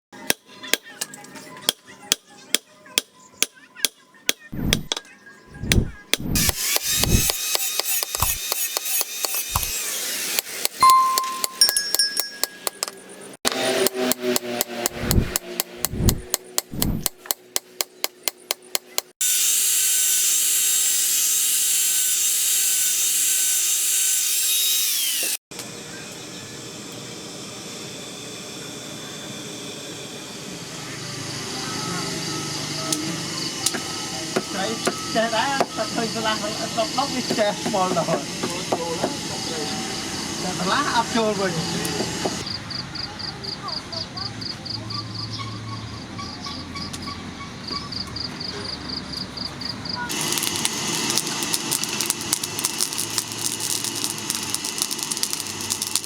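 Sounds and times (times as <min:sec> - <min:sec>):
heavy low thuds: 0:05.6 - 0:06.4
loud rough noise: 0:05.6 - 0:07.4, 0:14.8 - 0:17.1, 0:50.1 - 0:56.0
power tool grinding: 0:05.6 - 0:10.8, 0:13.5 - 0:25.4, 0:50.1 - 0:56.0
hammer striking steel on anvil: 0:06.4 - 0:09.7, 0:10.4 - 0:13.0
sharp metal strikes: 0:10.8 - 0:12.9.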